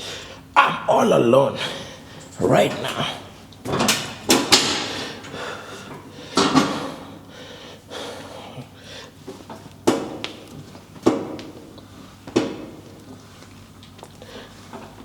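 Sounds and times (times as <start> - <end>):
gym weights clanking: 1.7 - 7.1.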